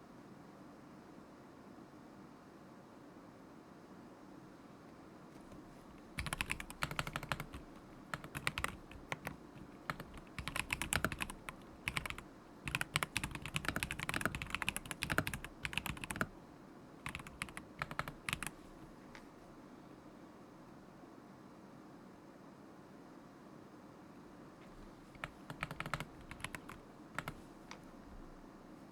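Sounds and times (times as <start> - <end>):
typing on mechanical keyboard: 5.5 - 16.3, 17.0 - 19.2, 25.2 - 27.8.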